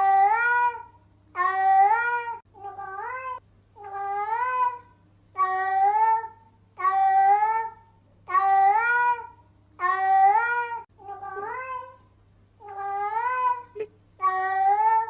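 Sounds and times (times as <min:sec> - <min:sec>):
cat meowing: 0:00.0 - 0:12.0, 0:12.6 - 0:15.0
faint low hum: 0:00.0 - 0:15.0.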